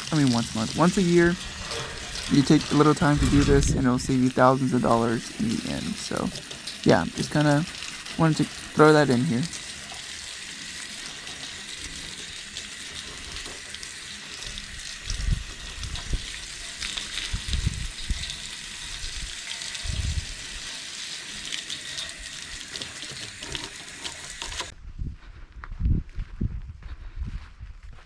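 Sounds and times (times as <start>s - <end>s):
hose spraying water on metal grates: 0.0s - 24.7s
dull low thumps: 24.8s - 28.0s.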